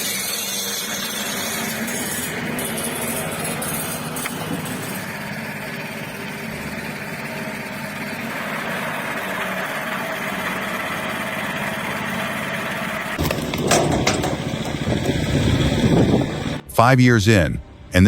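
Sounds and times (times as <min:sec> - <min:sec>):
rough machine noise: 0:00.0 - 0:16.6
machinery humming: 0:00.0 - 0:16.7
sharp knocks: 0:13.2 - 0:16.6.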